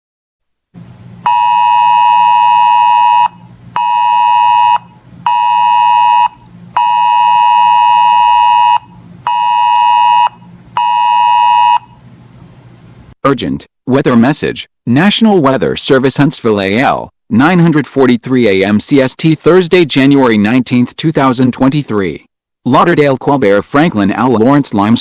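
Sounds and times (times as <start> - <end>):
weather radio alert buzzer beeping: 1.2 - 12.0.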